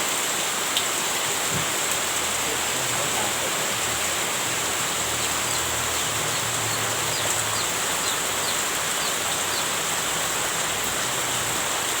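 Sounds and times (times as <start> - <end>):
heavy rain falling: 0.0 - 12.0
high falling chirps: 4.7 - 10.7.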